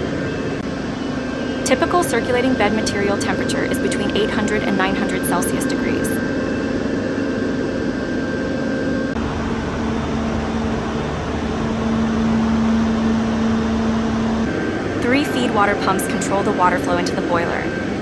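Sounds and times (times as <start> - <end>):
low hum: 0.0 - 18.0
machinery hum tones: 0.0 - 18.0
high tone: 1.7 - 6.2
fan-like rush: 9.1 - 18.0.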